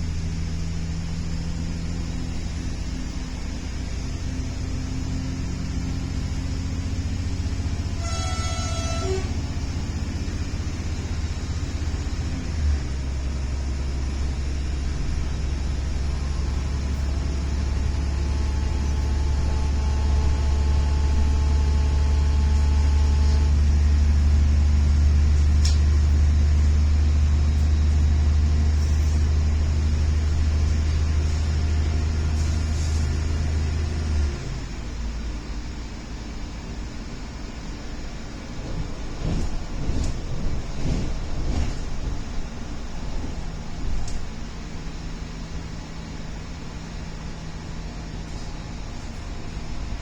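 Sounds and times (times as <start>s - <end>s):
train rumble inside carriage: 0.0s - 50.0s
short tone: 8.0s - 9.3s.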